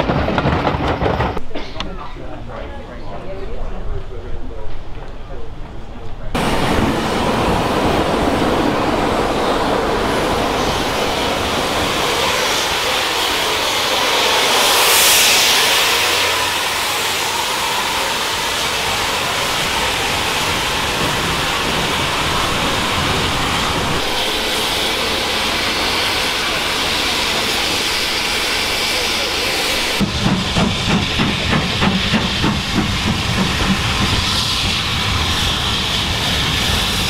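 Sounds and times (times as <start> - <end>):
wheels on rail: 0.0 - 37.0
hiss: 10.2 - 37.0.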